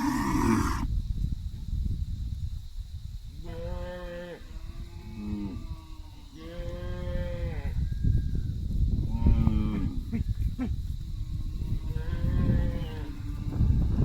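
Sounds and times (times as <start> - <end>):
cattle mooing: 0.0 - 0.8.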